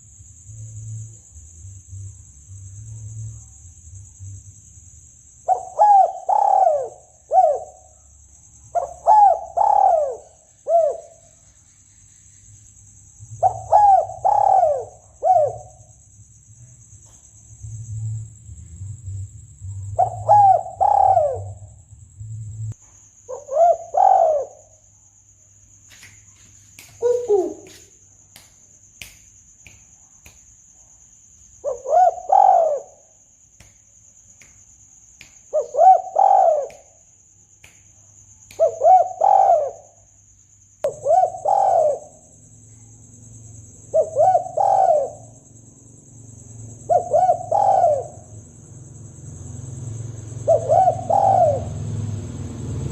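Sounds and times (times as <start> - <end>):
dove cooing: 5.5 - 7.8, 8.8 - 11.1, 13.4 - 15.8, 19.8 - 21.6, 23.3 - 24.6, 27.0 - 27.8, 31.7 - 32.9, 35.6 - 36.7, 38.6 - 39.8, 40.9 - 42.1, 43.9 - 45.3, 46.9 - 48.2, 50.4 - 51.7.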